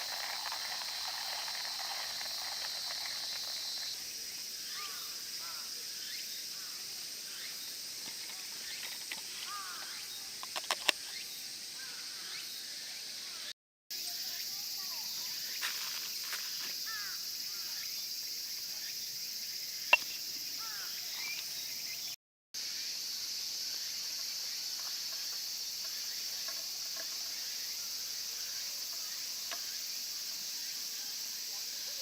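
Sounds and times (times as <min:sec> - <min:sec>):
insects chirping: 0:00.0 - 0:32.0
bird chirps: 0:19.9 - 0:22.2.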